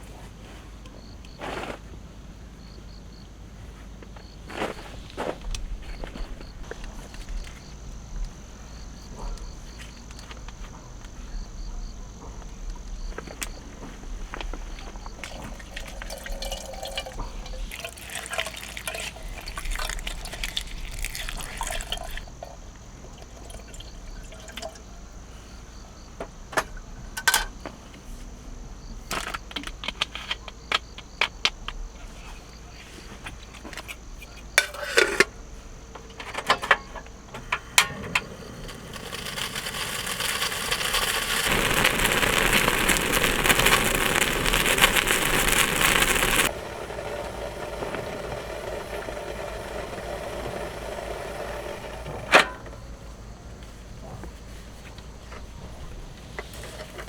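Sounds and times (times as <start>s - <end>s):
water pouring and splashing: 14.9s - 22.6s, 38.4s - 50.8s.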